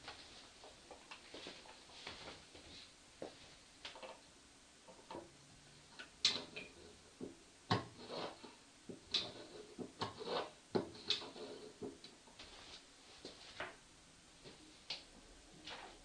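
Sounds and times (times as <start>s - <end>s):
knocking and clicking taps: 4.9s - 5.3s, 6.0s - 8.0s, 8.9s - 12.2s.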